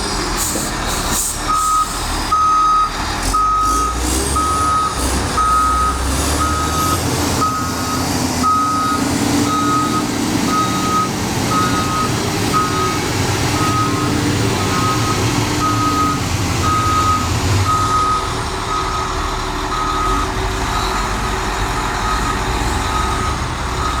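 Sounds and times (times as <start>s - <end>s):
diesel engine running: 0.0s - 24.0s
back-up alarm beeping: 4.4s - 19.1s.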